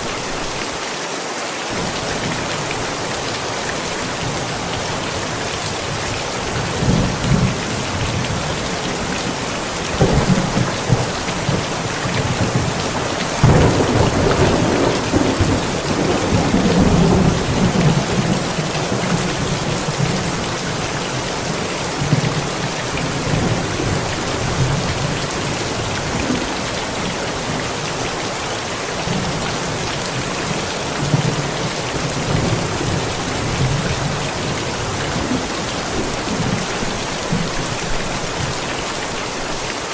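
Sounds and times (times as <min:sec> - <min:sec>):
heavy rain falling: 0:00.0 - 0:39.9
thunder clap and rumble: 0:05.8 - 0:27.6.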